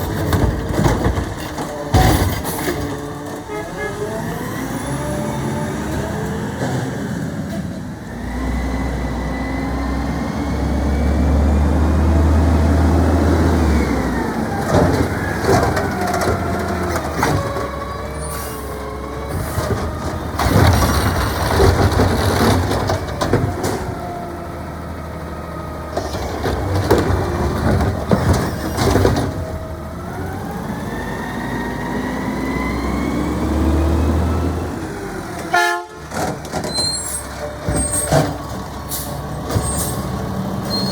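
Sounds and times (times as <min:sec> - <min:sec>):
metal clanks and bangs: 0:00.0 - 0:03.6
garbage truck engine revving: 0:00.0 - 0:40.9.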